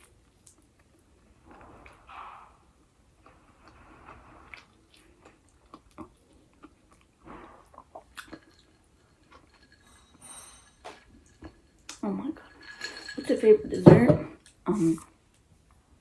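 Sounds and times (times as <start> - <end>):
person chewing food: 3.1 - 9.8.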